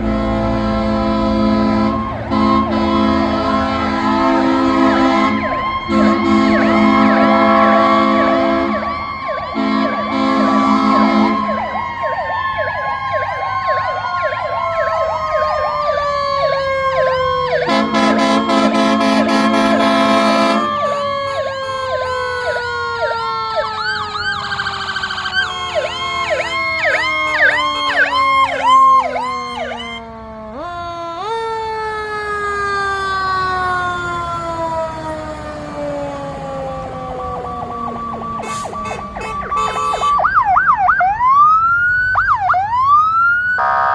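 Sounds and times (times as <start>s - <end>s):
air horn blast: 0.0s - 8.9s, 9.6s - 11.6s, 17.6s - 21.9s, 38.4s - 40.3s
electronic yelp sirens: 0.0s - 43.9s.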